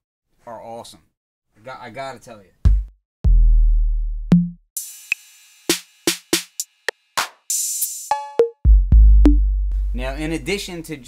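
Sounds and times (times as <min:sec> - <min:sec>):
deep kick drum boom: 0:02.7 - 0:04.6, 0:08.7 - 0:10.0.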